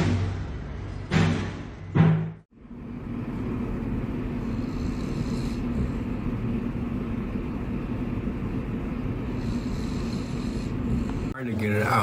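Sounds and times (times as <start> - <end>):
low rumble with constant hum: 2.5 - 12.0.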